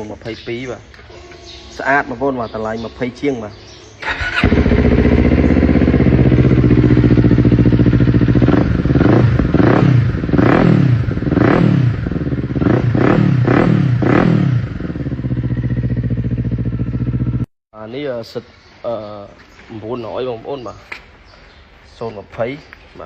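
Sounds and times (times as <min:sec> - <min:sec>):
motorcycle engine revving and idling: 0:02.1 - 0:17.5.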